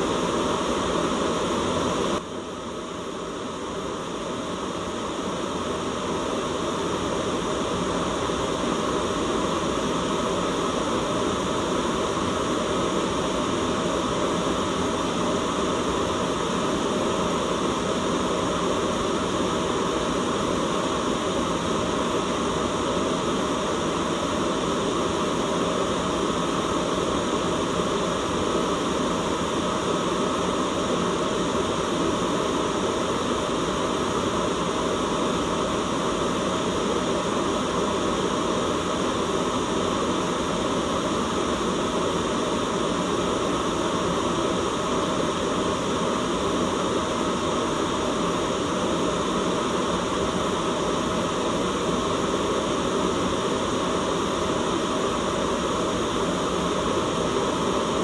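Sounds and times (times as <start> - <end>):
steady white noise hiss: 0.0 - 58.0.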